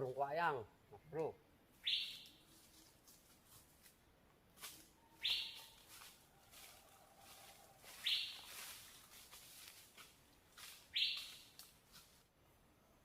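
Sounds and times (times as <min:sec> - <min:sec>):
bird harsh buzzy call: 0:01.8 - 0:02.4, 0:05.2 - 0:05.8, 0:08.0 - 0:08.5, 0:10.9 - 0:11.5.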